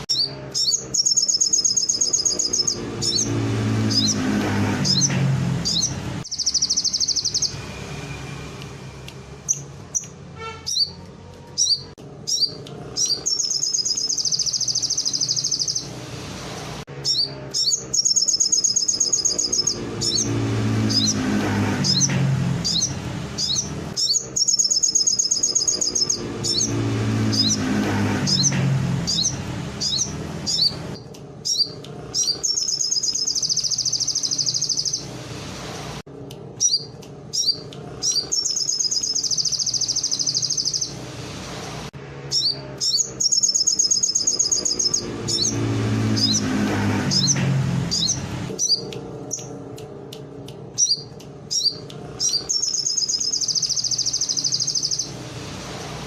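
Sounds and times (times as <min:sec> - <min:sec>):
songbird chirps and buzzing trills: 0:17.1 - 0:35.1, 0:36.6 - 0:41.0, 0:50.8 - 0:55.2.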